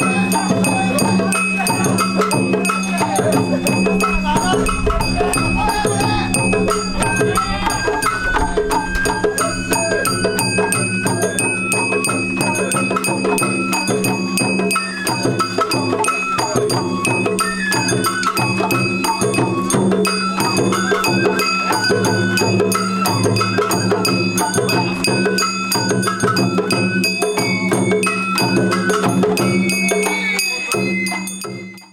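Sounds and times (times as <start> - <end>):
bamboo flute melody: 0.0 - 31.9
taiko drums: 0.0 - 31.9
hand gong struck: 3.3 - 13.2.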